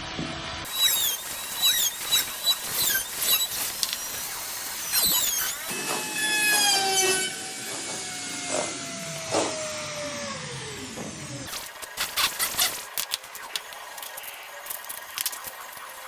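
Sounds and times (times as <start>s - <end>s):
power tool motor whining: 0.6s - 16.0s
short squeaky sounds: 0.7s - 7.4s, 11.5s - 13.0s.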